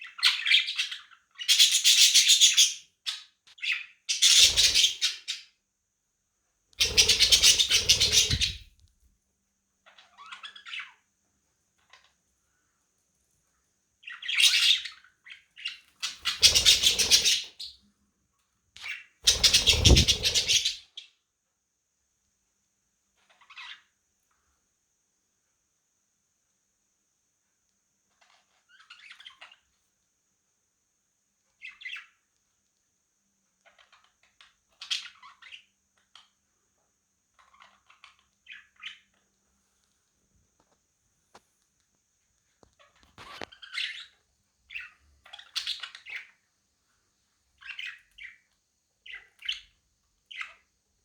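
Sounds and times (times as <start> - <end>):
budgerigars chirping and squawking: 0.0 - 5.4, 6.8 - 8.7, 9.9 - 11.0, 14.0 - 17.8, 18.8 - 20.9, 31.6 - 32.1, 42.9 - 46.4, 47.6 - 48.4, 49.0 - 49.7, 50.3 - 50.6
budgie squawking: 6.8 - 8.7, 19.3 - 20.8
faint bird chirp: 6.8 - 8.8, 9.8 - 11.1, 18.8 - 21.2, 28.1 - 30.0, 31.4 - 32.6, 33.4 - 40.0, 42.4 - 50.8
rapid wing flapping: 6.8 - 8.8, 19.2 - 20.7.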